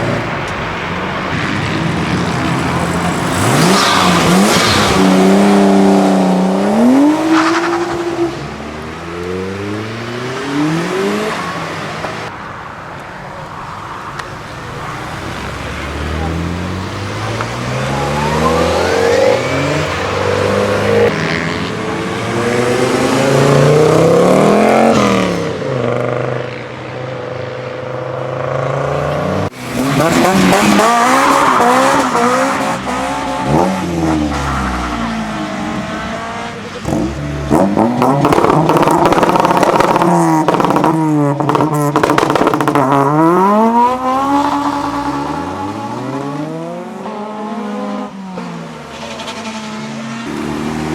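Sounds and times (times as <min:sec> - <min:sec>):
car engines accelerating hard: 0:00.0 - 0:12.3, 0:14.1 - 0:50.9
car revving with crackles: 0:01.3 - 0:12.3, 0:15.0 - 0:26.8, 0:28.2 - 0:50.9.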